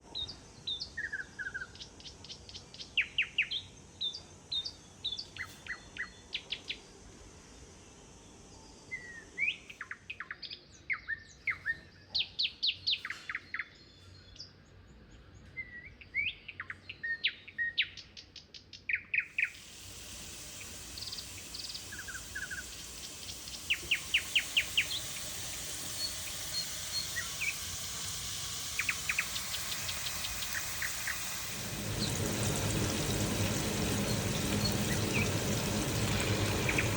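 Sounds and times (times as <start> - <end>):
small birds chirping and singing: 8.6 - 36.9
steady hiss: 19.4 - 36.9.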